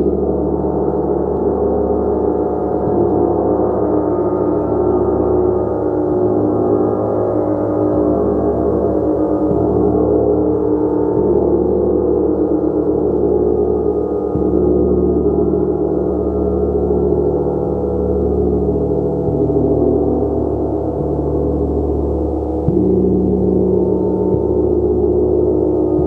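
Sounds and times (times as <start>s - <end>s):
gong played with soft mallet: 0.0s - 26.0s.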